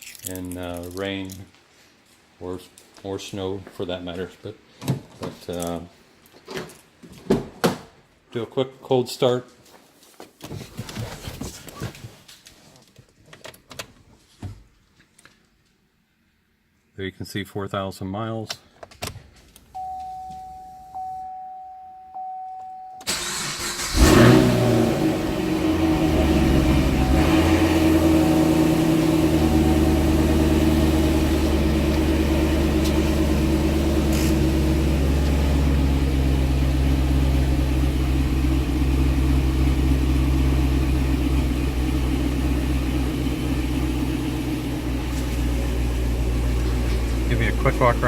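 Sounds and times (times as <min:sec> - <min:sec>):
car engine cranking and starting: 0:23.0 - 0:48.0
car engine fast idle: 0:23.1 - 0:48.0.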